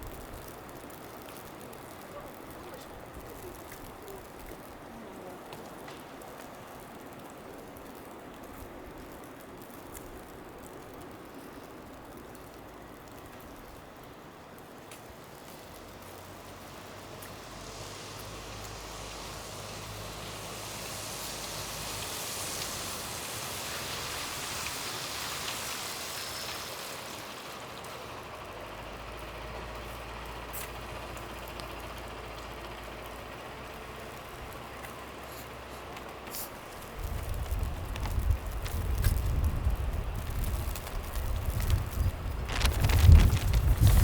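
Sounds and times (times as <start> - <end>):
tyre hiss on snow: 15.0 - 32.2, 32.9 - 44.0
low engine hum: 15.6 - 44.0.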